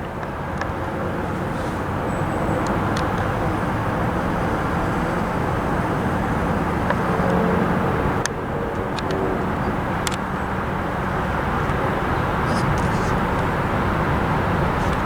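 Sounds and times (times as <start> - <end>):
vehicle rumble: 0.0 - 15.0
faint sharp clicks: 10.0 - 10.3.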